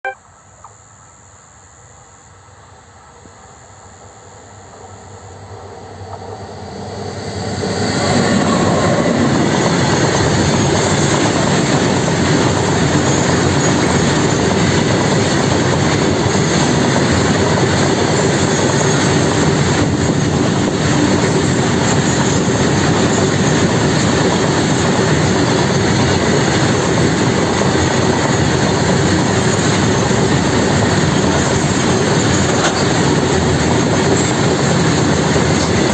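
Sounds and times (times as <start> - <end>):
train wheels rushing on rails: 2.7 - 35.9.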